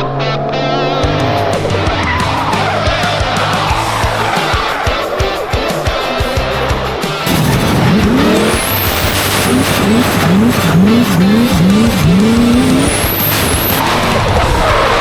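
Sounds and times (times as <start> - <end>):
car engine revving hard: 7.2 - 15.0.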